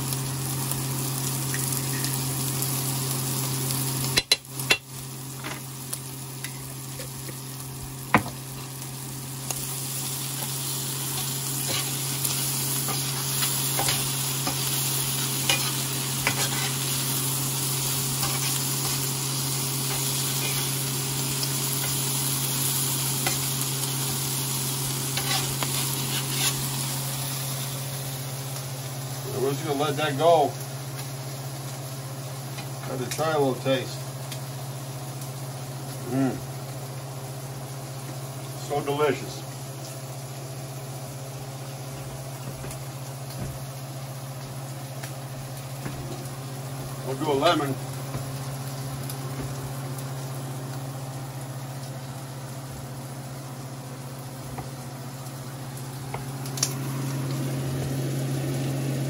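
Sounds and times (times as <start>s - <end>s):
squid sizzling in oil: 0.0s - 59.0s
spatula scraping and knocking pan: 12.8s - 16.9s, 25.1s - 26.7s.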